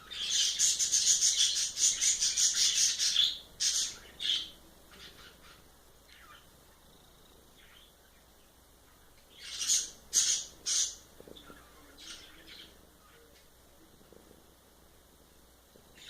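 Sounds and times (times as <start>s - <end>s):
bird chirps: 7.6s - 13.5s.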